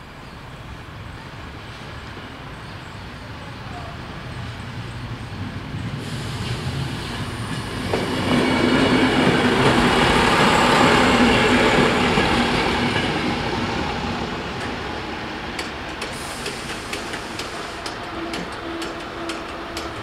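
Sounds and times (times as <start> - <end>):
passenger train rumbling: 0.0 - 20.0.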